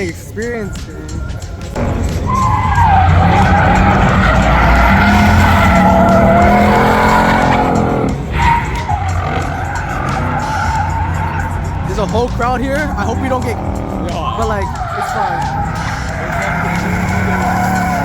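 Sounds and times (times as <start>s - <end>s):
tires squealing: 0.0s - 18.0s
car engine at high revs: 1.2s - 18.0s.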